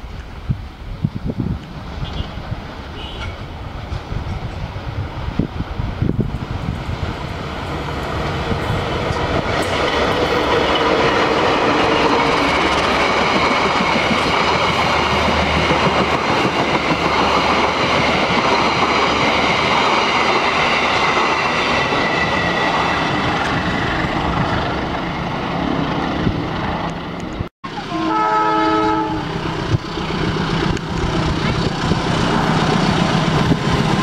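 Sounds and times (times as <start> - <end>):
passenger train coaches rumbling: 0.0 - 34.0
wheels clacking over rail joints: 6.2 - 24.7.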